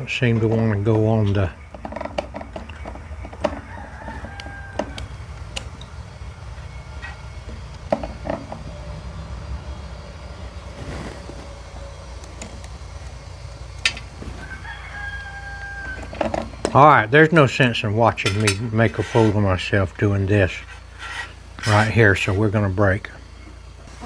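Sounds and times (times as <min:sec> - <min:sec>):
steady low rumble: 0:00.0 - 0:24.0
saw chain clicking and clinking: 0:13.8 - 0:23.3.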